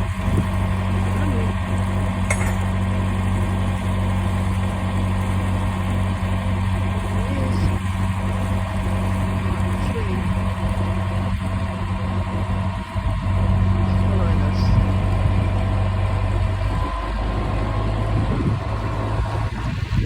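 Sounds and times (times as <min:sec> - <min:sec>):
boat engine low drone: 0:00.0 - 0:20.0.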